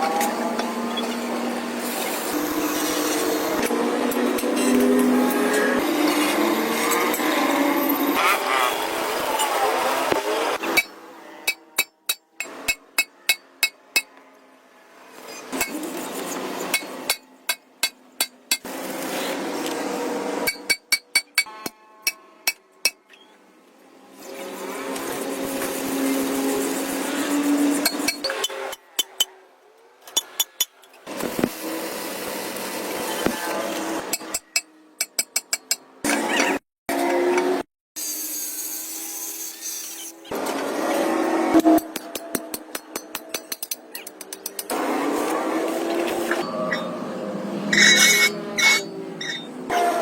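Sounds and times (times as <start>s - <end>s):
tools striking metal: 10.6s - 14.1s, 16.7s - 18.7s, 20.4s - 23.1s, 34.1s - 35.9s, 41.6s - 44.8s, 47.7s - 49.6s.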